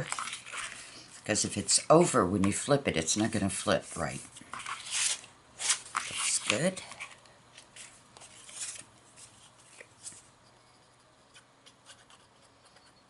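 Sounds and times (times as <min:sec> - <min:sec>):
paper rustling and rubbing: 0:00.0 - 0:01.3, 0:03.7 - 0:10.3.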